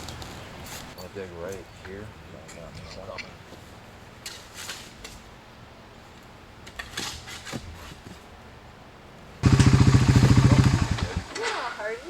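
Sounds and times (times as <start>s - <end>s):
small engine running: 9.4s - 11.4s.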